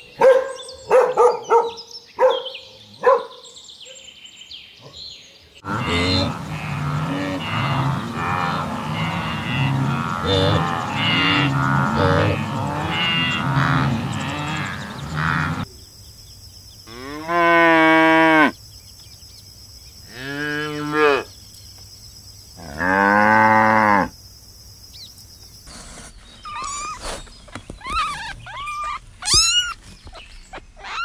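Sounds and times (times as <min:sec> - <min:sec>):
cattle mooing: 0:05.6 - 0:15.6.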